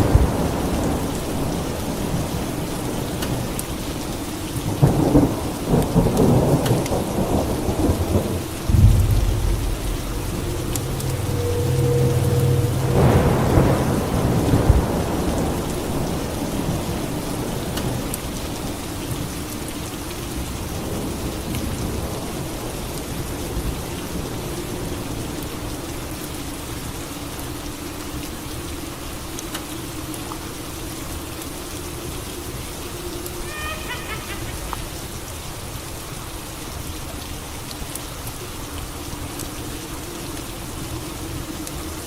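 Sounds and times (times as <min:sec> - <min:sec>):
steady rain falling: 0:00.0 - 0:42.0
thunder rumble: 0:04.7 - 0:18.0.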